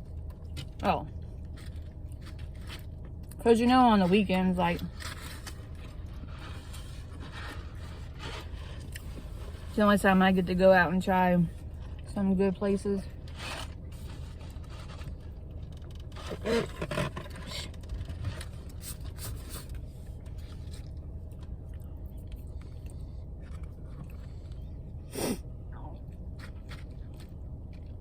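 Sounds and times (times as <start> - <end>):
low steady hum: 0.0 - 28.0
food handling scrapes and clicks: 1.4 - 3.4, 4.1 - 9.8, 13.1 - 21.6, 26.2 - 28.0
chewing: 14.0 - 24.7, 26.0 - 28.0.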